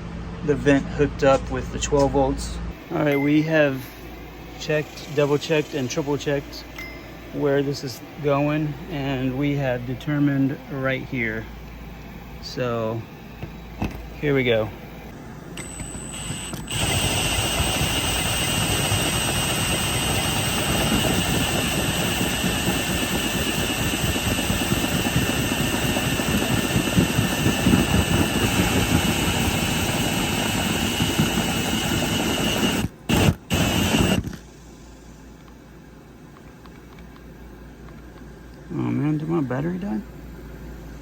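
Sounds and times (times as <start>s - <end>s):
drill with hole saw cutting: 15.6s - 34.4s.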